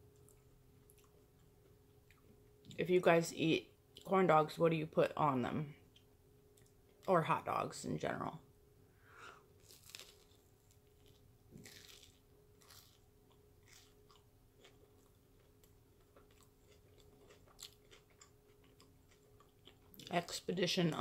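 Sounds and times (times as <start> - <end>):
soft chewing: 0.0 - 2.8, 5.8 - 7.1, 9.3 - 20.5
biting food: 9.6 - 20.1.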